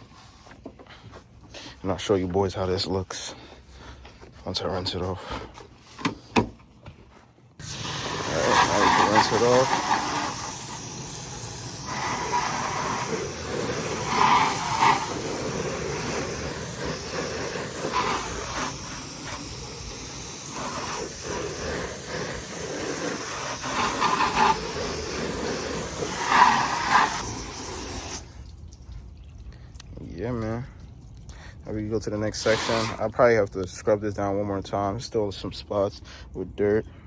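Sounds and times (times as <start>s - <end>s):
hose spraying water on car: 7.6s - 28.6s, 31.9s - 33.3s.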